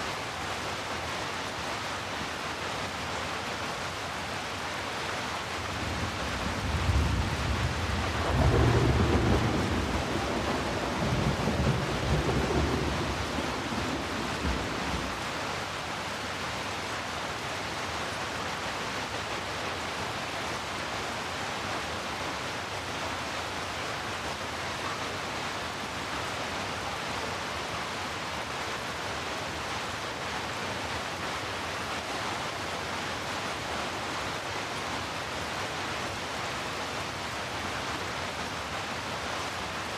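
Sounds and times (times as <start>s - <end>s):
steady rain: 0.0s - 39.9s
thunder rumbling: 6.5s - 15.2s.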